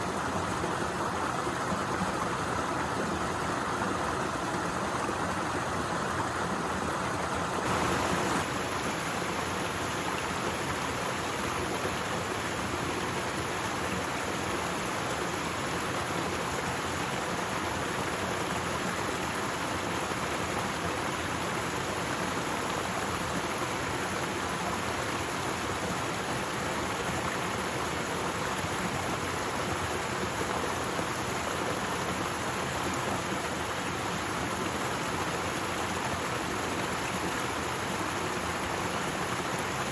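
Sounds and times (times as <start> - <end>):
waterfall rushing: 7.6 - 17.0.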